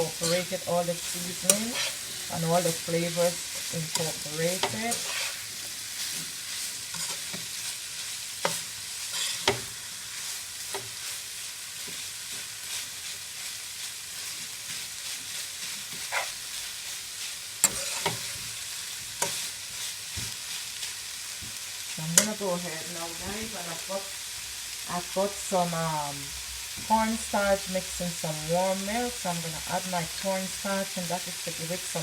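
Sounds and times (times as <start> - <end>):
food sizzling in a pan: 0.0 - 32.0.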